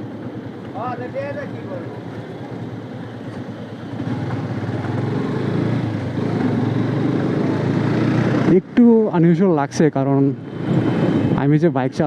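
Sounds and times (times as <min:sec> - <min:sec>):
motorcycle engine running: 0:00.0 - 0:09.0.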